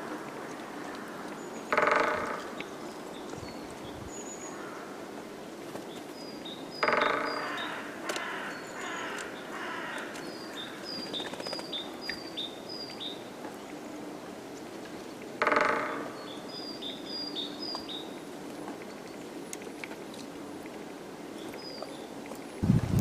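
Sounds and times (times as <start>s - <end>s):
small birds chirping: 5.7s - 13.7s, 16.1s - 18.2s.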